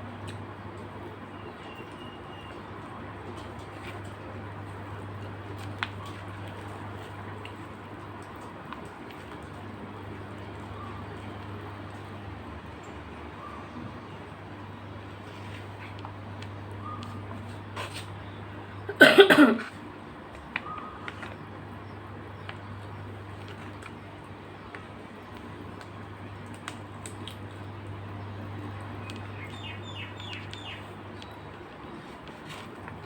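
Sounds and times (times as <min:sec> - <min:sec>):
person coughing: 0:18.9 - 0:19.8.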